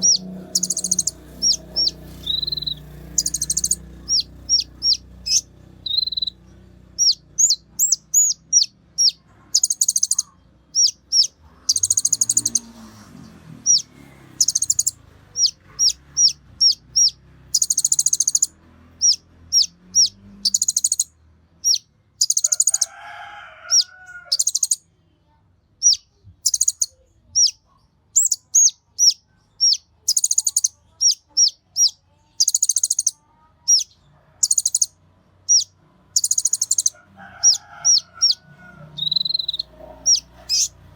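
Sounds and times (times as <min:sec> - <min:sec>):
sunbird singing: 0:00.0 - 0:12.7, 0:13.6 - 0:22.9, 0:23.7 - 0:24.8, 0:25.8 - 0:34.9, 0:35.5 - 0:40.9
lower bird call: 0:00.0 - 0:13.0, 0:13.6 - 0:22.9, 0:35.5 - 0:40.9.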